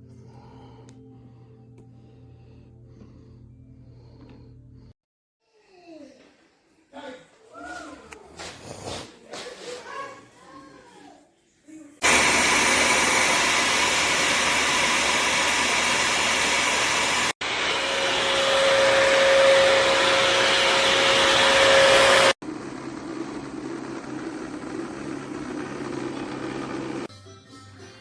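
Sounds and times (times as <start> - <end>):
steady whine: 12.0 - 27.1
wet-dry vacuum running: 12.0 - 27.1.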